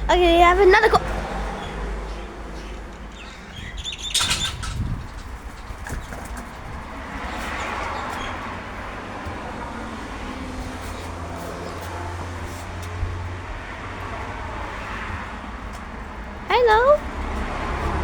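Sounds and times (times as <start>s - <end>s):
car passing: 0.0s - 18.0s
traffic hum: 0.0s - 18.0s.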